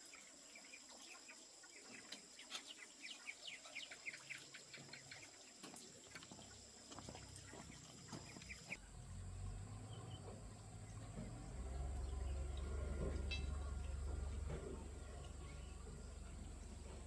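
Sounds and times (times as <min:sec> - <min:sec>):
birds chirping: 0:00.0 - 0:08.8
faint low hum: 0:00.0 - 0:17.0.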